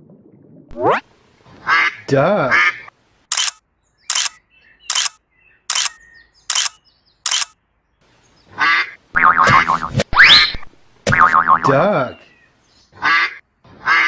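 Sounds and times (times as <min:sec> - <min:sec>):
duck quacking: 0:08.6 - 0:11.8, 0:13.0 - 0:14.0.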